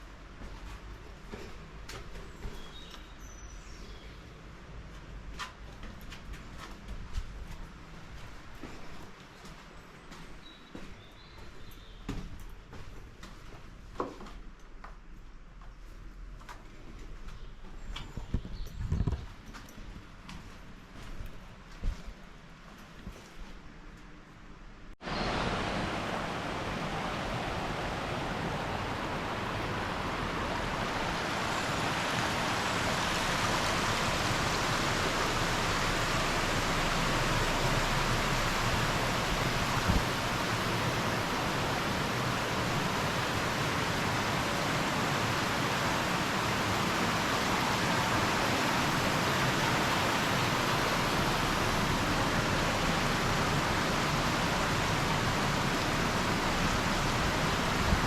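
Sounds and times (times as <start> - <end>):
water flowing: 25.0 - 58.0.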